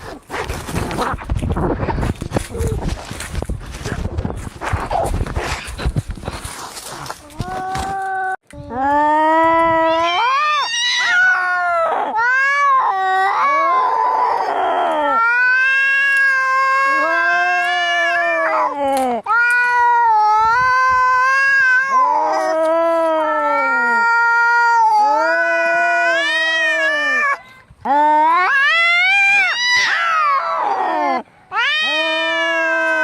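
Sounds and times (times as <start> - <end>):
cats yowling: 9.5 - 33.0.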